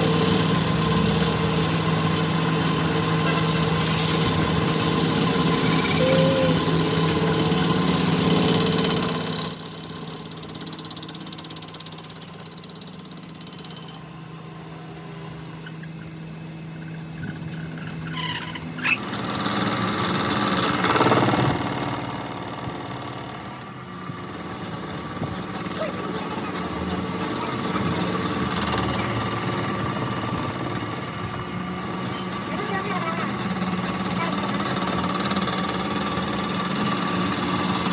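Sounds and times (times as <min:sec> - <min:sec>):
power tool motor whining: 0:02.3 - 0:14.1.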